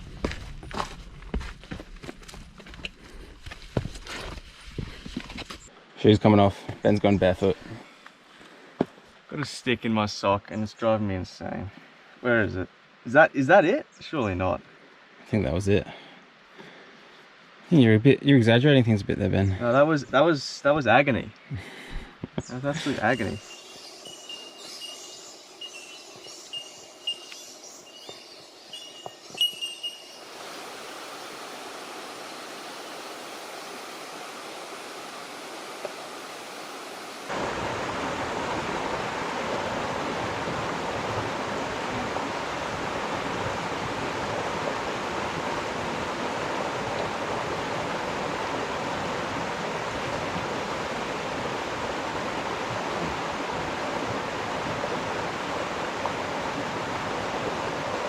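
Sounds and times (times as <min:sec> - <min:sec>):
rushing creek water: 0:02.3 - 0:58.0
high repeated chirp: 0:22.9 - 0:30.3.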